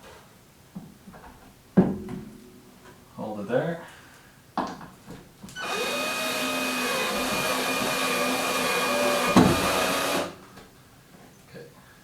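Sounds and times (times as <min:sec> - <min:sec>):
power drill whining: 0:05.6 - 0:10.4.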